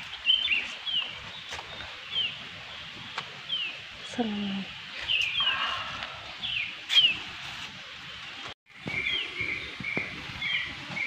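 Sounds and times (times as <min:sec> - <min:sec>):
birds chirping: 0:00.0 - 0:07.4, 0:08.1 - 0:11.0
steady outdoor hiss: 0:00.0 - 0:11.0.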